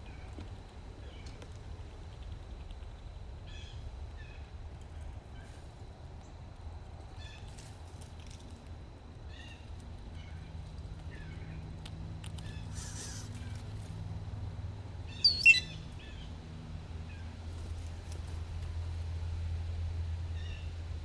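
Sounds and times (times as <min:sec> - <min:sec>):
small birds chirping: 0:12.3 - 0:14.0, 0:15.0 - 0:16.4.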